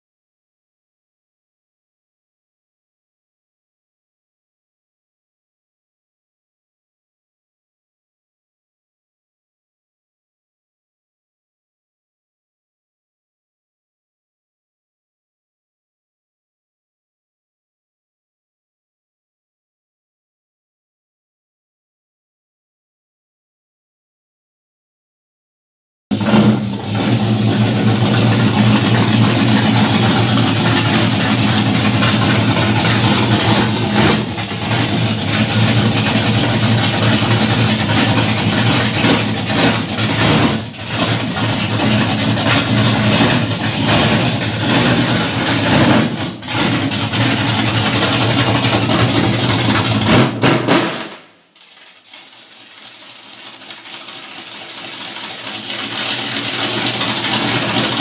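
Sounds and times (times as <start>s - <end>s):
car engine rumbling: 26.1s - 50.7s, 55.2s - 58.0s.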